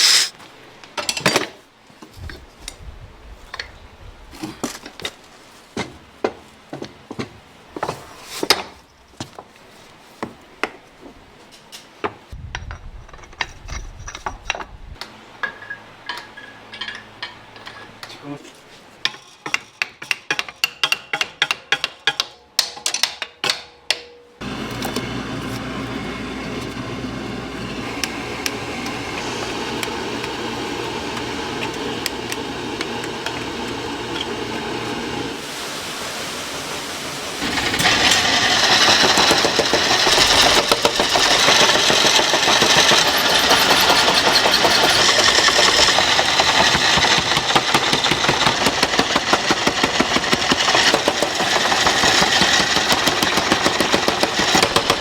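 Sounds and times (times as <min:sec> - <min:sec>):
machine running: 0:24.4 - 0:35.4, 0:37.4 - 0:55.0
fast rattle: 0:37.4 - 0:55.0.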